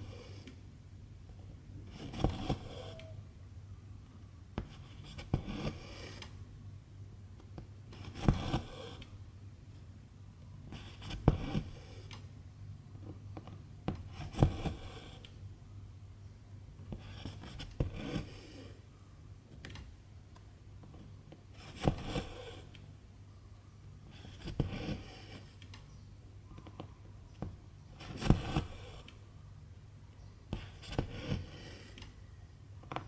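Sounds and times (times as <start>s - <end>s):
needle piercing fabric: 1.8s - 3.2s.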